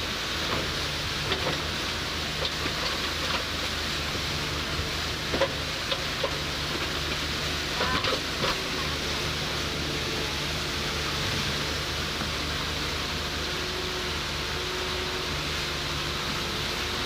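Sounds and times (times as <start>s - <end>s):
constant rushing noise: 0.0s - 17.0s
engine humming: 0.0s - 17.0s.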